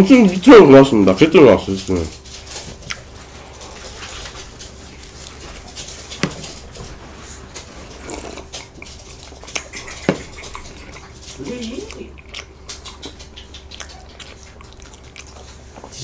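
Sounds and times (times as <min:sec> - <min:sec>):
chewing bread: 0:01.4 - 0:16.0
mouth clicks: 0:11.9 - 0:15.4.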